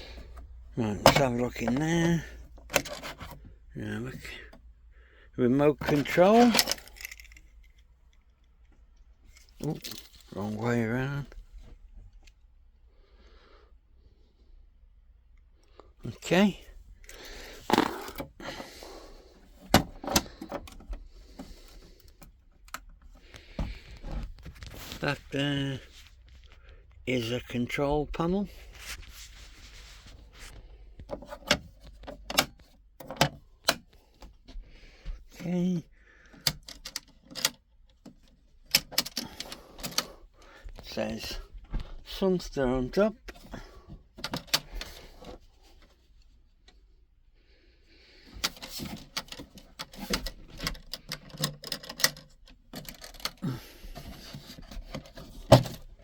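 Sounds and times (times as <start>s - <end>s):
small clicks and knocks: 48.4s - 56.0s.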